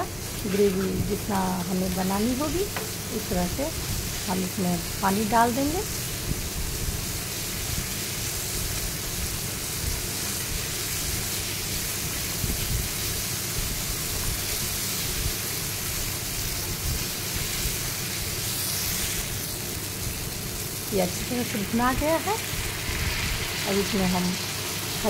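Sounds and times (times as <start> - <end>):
masala sizzling in hot oil: 0.0 - 25.0
wooden spatula stirring in pan: 0.2 - 1.3.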